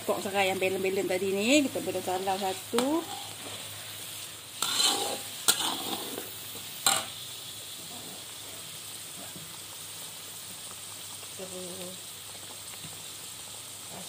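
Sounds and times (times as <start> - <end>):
chili paste sizzling in oil: 0.0 - 14.0.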